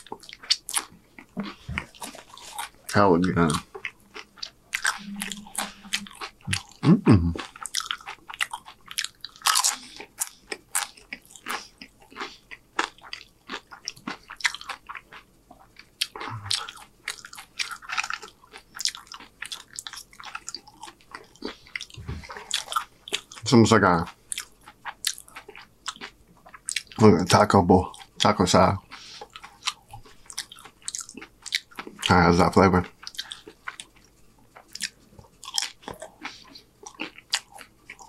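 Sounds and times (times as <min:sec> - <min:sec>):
person chewing crunchy chips: 0:00.0 - 0:32.2, 0:32.8 - 0:38.0.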